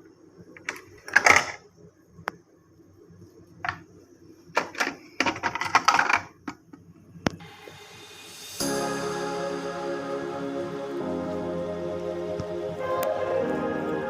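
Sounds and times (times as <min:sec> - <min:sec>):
clattering: 0:04.6 - 0:06.6
background music: 0:07.4 - 0:14.0.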